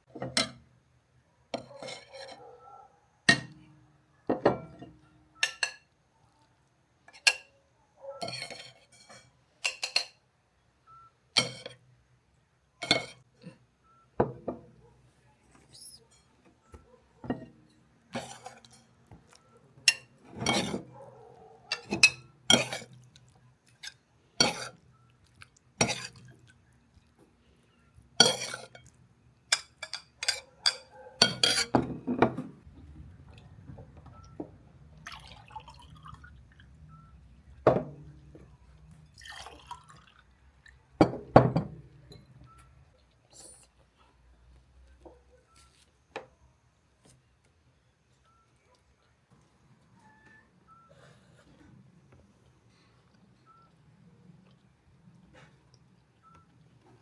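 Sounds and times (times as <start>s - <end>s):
dishes and cutlery clinking: 0.1s - 0.7s, 1.6s - 2.6s, 4.3s - 6.0s, 7.1s - 7.6s, 8.2s - 10.2s, 11.4s - 11.9s, 12.8s - 13.3s, 17.2s - 23.1s, 23.7s - 24.9s, 25.8s - 26.4s, 28.2s - 32.7s, 37.6s - 40.0s, 41.0s - 42.5s.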